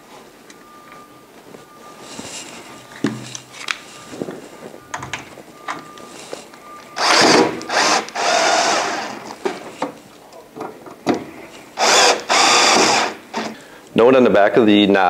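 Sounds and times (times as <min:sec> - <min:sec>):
cordless drill driving screws: 0:07.0 - 0:09.4, 0:11.8 - 0:13.6.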